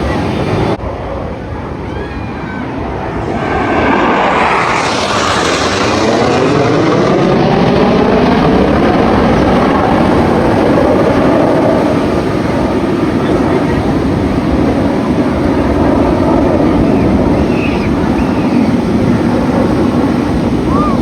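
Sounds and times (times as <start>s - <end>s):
jets passing: 0.0s - 21.0s.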